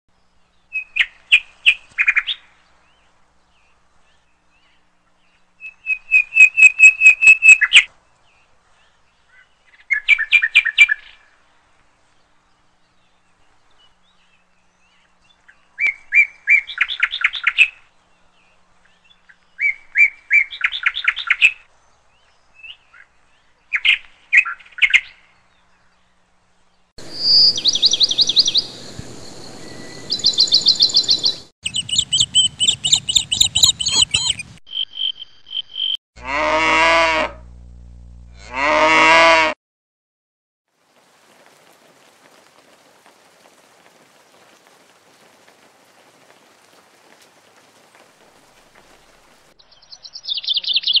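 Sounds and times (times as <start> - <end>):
bird chirping: 0.2 - 11.3, 12.7 - 36.0, 48.9 - 51.0.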